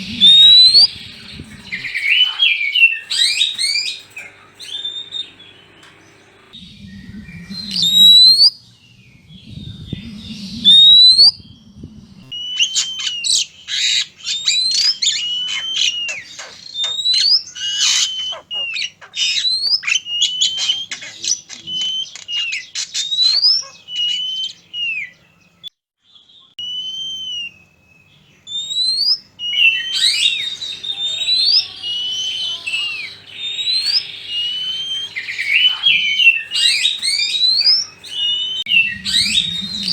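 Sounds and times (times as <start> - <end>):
low rumble: 0.0 - 1.9, 6.5 - 12.3, 38.4 - 39.9
harsh scratchy bird chattering: 0.0 - 6.6, 12.3 - 25.0, 29.5 - 39.9
birds whistling song: 0.0 - 39.9.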